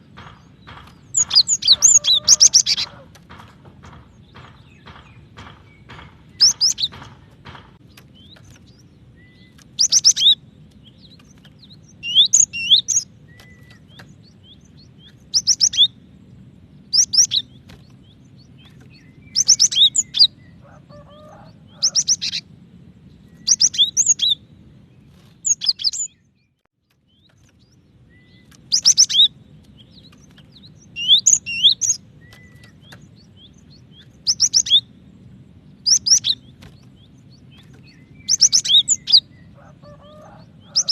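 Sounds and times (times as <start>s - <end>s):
bird calling sharp high notes: 1.0s - 3.2s.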